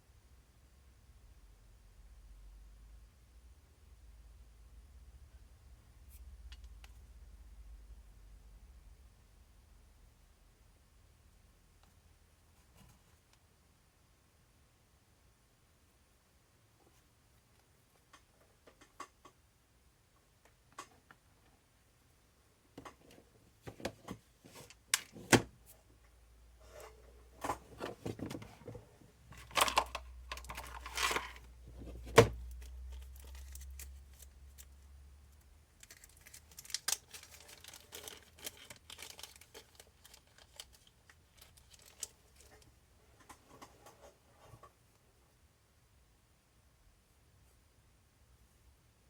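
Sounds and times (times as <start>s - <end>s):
clicks and knocks of small parts: 29.4s - 31.4s
crinkling packaging: 29.4s - 42.7s.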